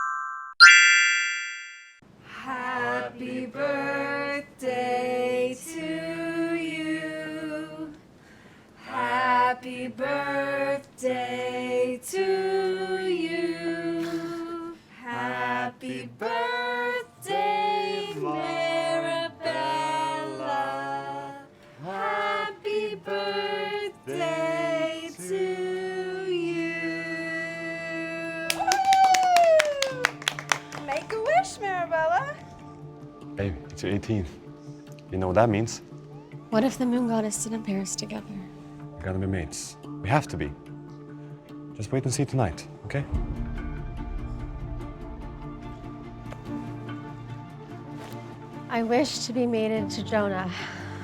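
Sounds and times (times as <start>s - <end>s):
female voices singing: 2.3s - 8.0s, 8.8s - 28.8s.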